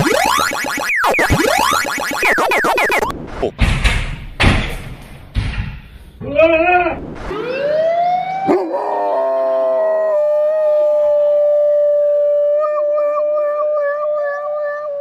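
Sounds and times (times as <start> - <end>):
dog howling: 8.4 - 15.0.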